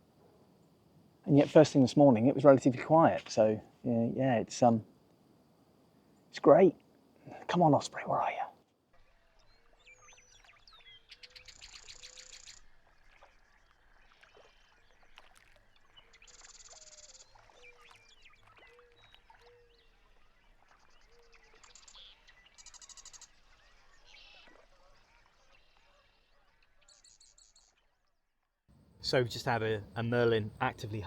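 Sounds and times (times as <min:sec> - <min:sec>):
buzzy bird trills: 0:15.9 - 0:27.9.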